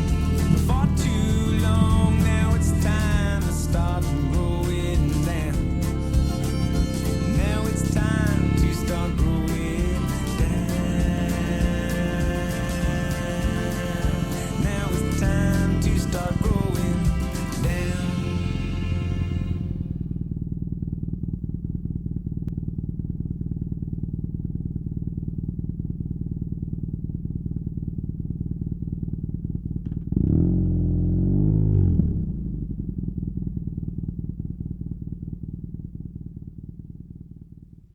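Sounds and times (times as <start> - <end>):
motorcycle engine idling: 0.0 - 37.9
motorcycle engine revving: 0.0 - 37.9.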